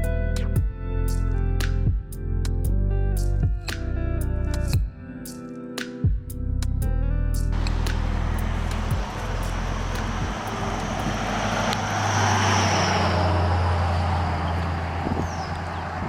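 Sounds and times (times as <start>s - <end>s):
vehicle passing: 7.6s - 16.0s.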